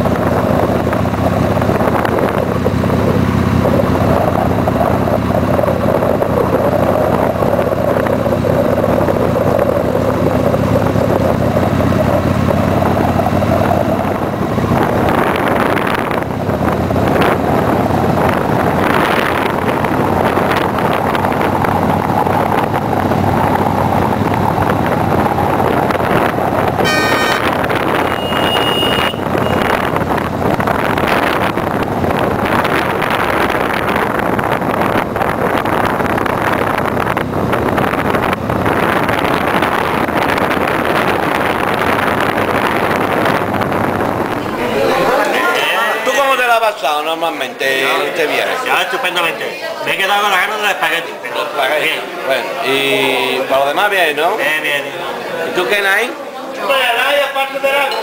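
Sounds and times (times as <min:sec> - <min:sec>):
vehicle engine and road noise: 0:00.0 - 0:58.0
high-pitched beep: 0:26.8 - 0:27.4, 0:28.0 - 0:29.9.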